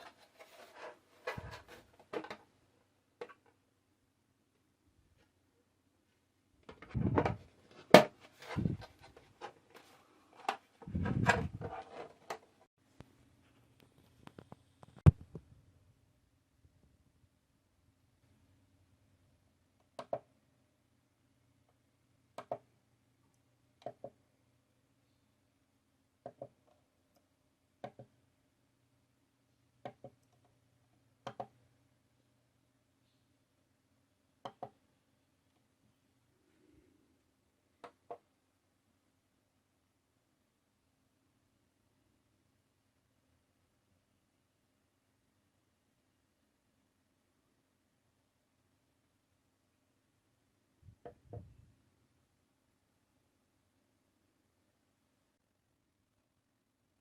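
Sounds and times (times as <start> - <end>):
plastic scraping and rubbing: 0.0 - 2.5, 6.7 - 12.7.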